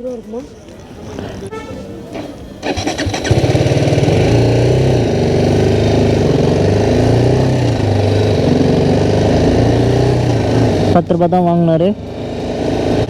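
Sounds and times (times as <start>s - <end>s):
motorcycle engine starting and revving: 1.5s - 13.0s.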